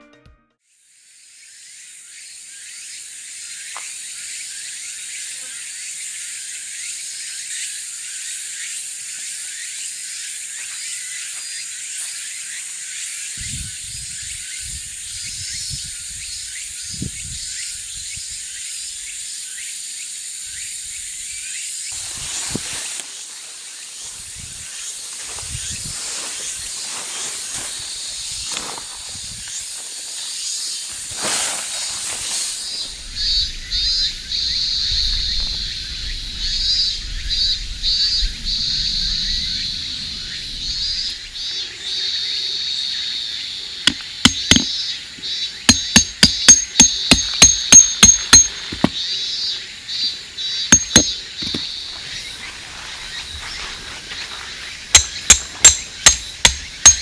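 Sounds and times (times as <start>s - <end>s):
hammer strikes: 43.9s - 44.7s, 45.7s - 49.0s, 50.7s - 51.6s, 55.0s - 57.0s
knocks and rustles: 45.7s - 49.0s, 50.8s - 51.6s.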